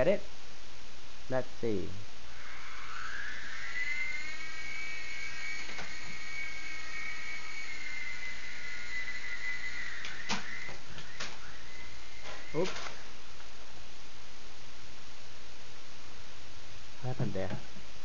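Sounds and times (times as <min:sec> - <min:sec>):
toy helicopter motor whining: 0:02.3 - 0:13.2.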